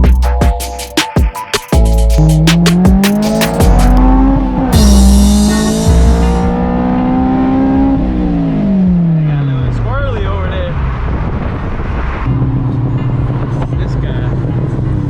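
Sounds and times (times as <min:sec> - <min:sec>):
car engine accelerating hard: 0:03.2 - 0:15.0.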